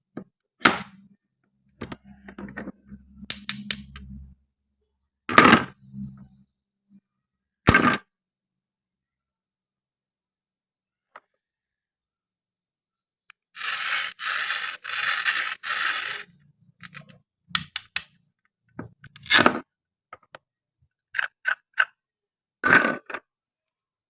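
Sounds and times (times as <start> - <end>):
small hard toys clicking: 13.3 - 18.2
toy pieces scraping: 13.4 - 17.2, 19.1 - 19.6, 21.1 - 22.0.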